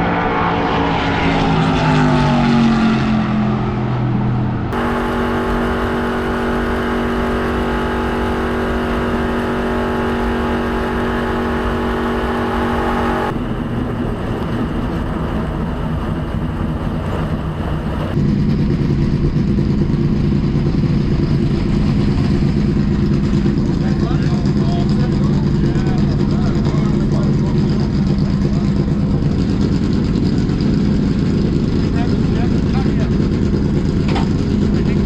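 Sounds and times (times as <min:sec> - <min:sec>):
race car engine at high speed: 0:00.0 - 0:35.0.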